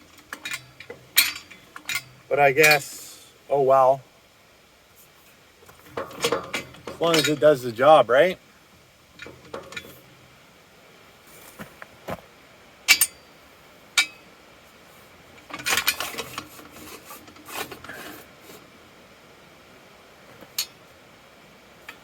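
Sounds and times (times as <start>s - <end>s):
metal parts clinking and knocking: 0.3s - 2.9s, 5.9s - 7.5s, 9.2s - 10.0s, 15.5s - 18.2s.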